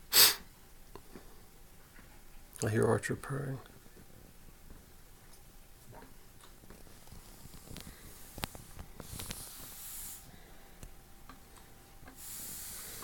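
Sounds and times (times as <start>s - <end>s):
faint clicks and taps: 10.8s - 12.2s.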